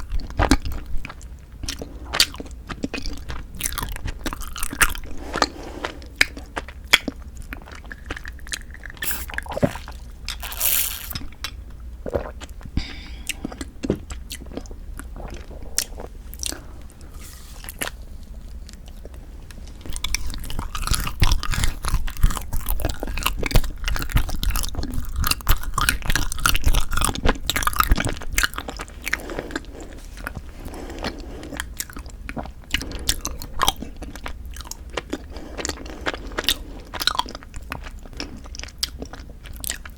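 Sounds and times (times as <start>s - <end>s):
crunchy biting and chewing: 0.0s - 11.3s, 19.9s - 39.9s.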